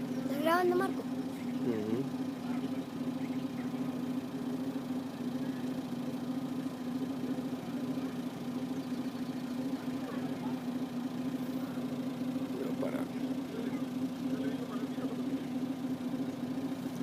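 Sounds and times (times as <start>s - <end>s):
vehicle engine humming steadily: 0.0s - 17.0s.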